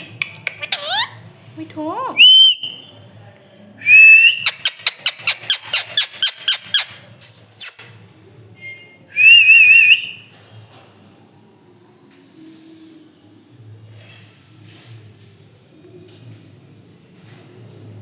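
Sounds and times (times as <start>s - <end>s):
parrot chirps: 0.0s - 1.2s, 2.2s - 2.9s, 4.4s - 7.8s
parrot whistling and calling: 0.4s - 1.2s, 2.2s - 2.9s.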